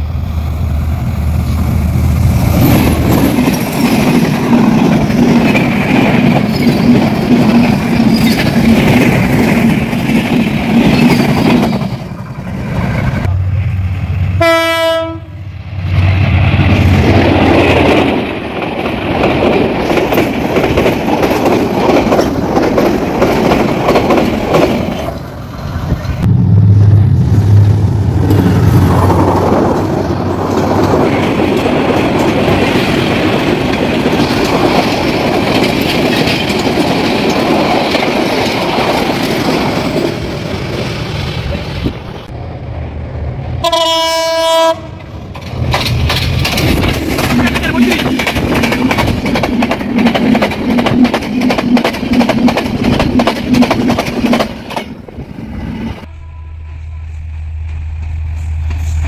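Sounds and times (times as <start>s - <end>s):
train coaches rushing past: 0.0s - 59.0s
train horn: 14.4s - 15.4s, 43.6s - 45.0s, 56.1s - 57.4s
wheels clattering over rail joints: 28.2s - 40.3s, 45.0s - 55.0s.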